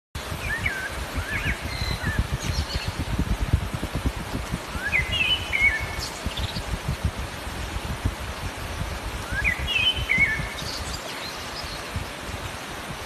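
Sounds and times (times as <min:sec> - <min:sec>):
small birds chirping: 0:00.3 - 0:03.4, 0:04.7 - 0:06.9, 0:09.3 - 0:12.0.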